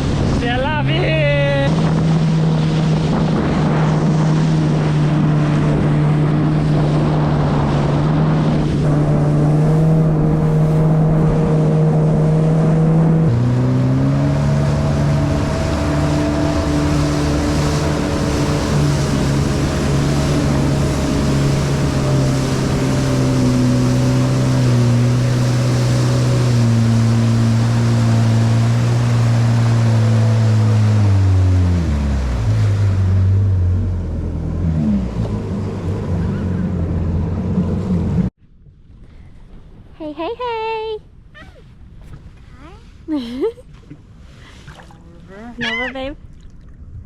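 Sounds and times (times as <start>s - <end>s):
jet ski engine running: 0.0s - 38.3s, 45.3s - 46.2s
wind on microphone: 0.0s - 38.3s
water rushing by hull: 0.0s - 39.9s, 41.1s - 47.0s.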